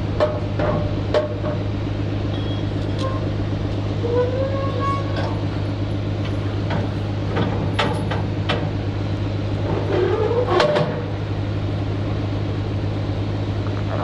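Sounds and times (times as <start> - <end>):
diesel engine idling: 0.0 - 14.0
gliding metallic squeal: 4.0 - 5.4.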